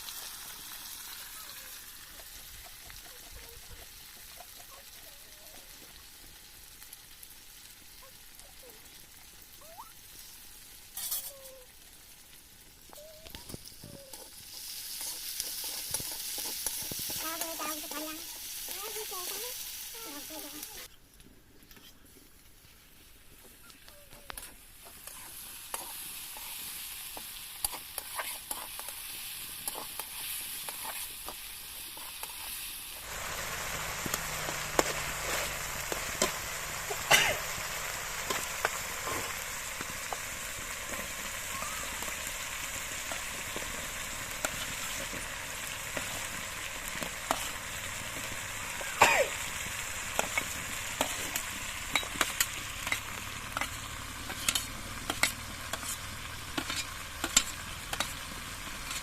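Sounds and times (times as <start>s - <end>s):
food sizzling in oil: 0.0s - 20.9s, 22.9s - 59.0s
spoon scraping pan: 14.1s - 18.5s, 24.4s - 41.1s, 50.1s - 58.2s.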